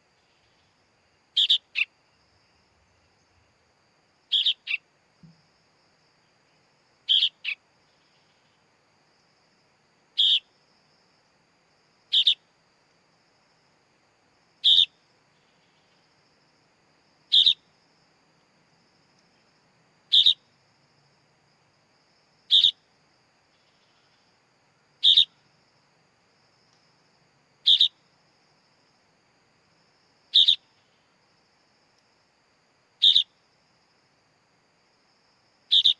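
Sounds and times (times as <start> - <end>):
bird chick calling: 4.3 - 4.8, 7.1 - 7.6, 12.1 - 12.4, 33.0 - 33.3.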